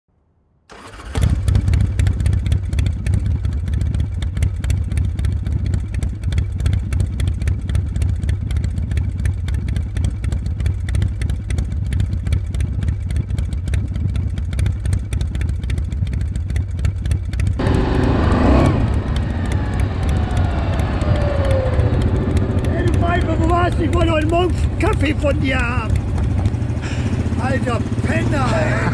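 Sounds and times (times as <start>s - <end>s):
engine low rumble: 0.7s - 28.9s
gliding engine tone: 17.6s - 28.9s.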